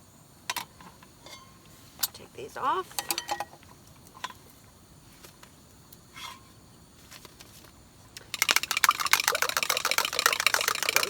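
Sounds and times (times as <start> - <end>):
utensils clicking on pan: 8.2 - 11.0.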